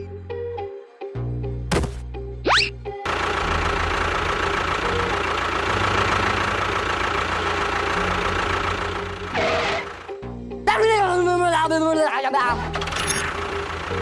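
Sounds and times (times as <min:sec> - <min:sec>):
engine running: 0:03.1 - 0:10.4, 0:12.6 - 0:14.0.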